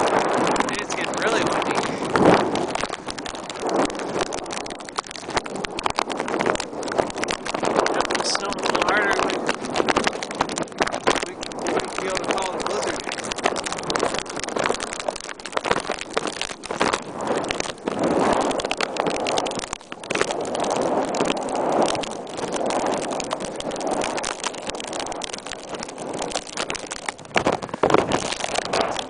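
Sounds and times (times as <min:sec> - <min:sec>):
plastic bag crackling and rustling: 0:00.0 - 0:29.0
wind gusts buffeting: 0:00.0 - 0:29.0.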